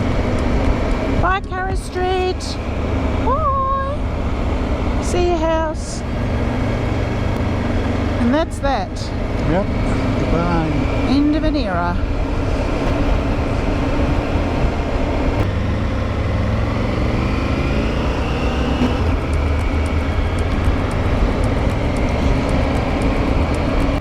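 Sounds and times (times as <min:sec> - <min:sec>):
motorcycle engine and tyres rumble: 0:00.0 - 0:24.0
wind fluttering on microphone: 0:18.6 - 0:24.0.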